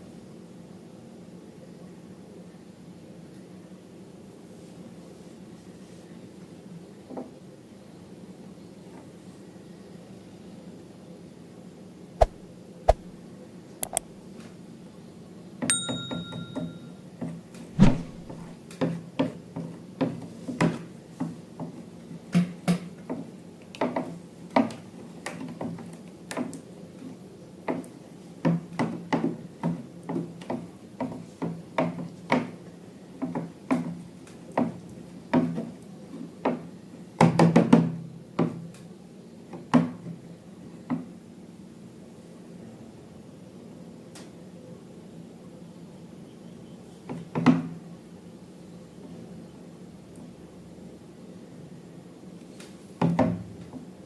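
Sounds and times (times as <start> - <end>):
objects knocking and tapping: 15.7 - 16.9
ringing ding: 15.7 - 17.0.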